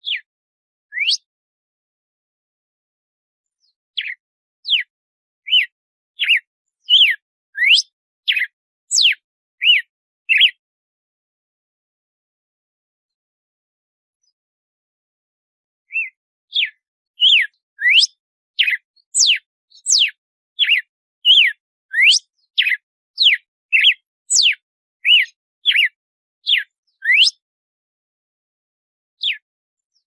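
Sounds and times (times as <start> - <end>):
bird whistling song: 0.0 - 0.3, 0.9 - 1.3, 3.5 - 10.6, 15.9 - 27.4, 29.2 - 30.0.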